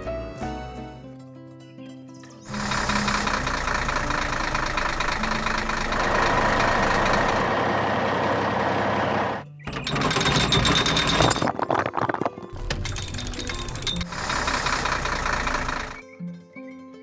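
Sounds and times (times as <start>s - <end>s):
construction vehicle engine running: 2.5s - 11.5s, 12.6s - 16.0s.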